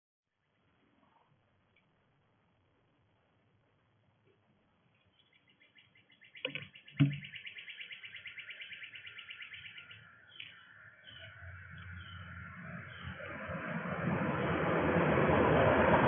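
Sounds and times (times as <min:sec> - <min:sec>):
songbird trilling chirps: 0:04.9 - 0:13.3
sharp knocks: 0:06.4 - 0:07.3.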